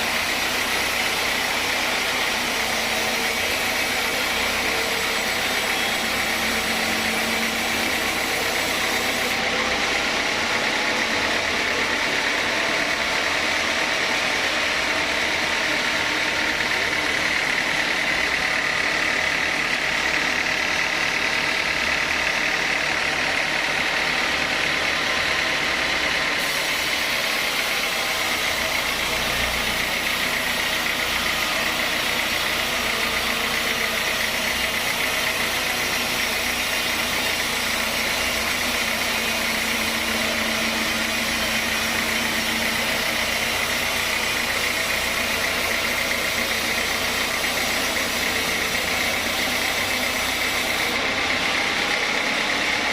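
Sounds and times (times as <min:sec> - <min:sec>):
high machine whine: 0:00.0 - 0:52.9
sawmill machinery hum: 0:00.0 - 0:52.9.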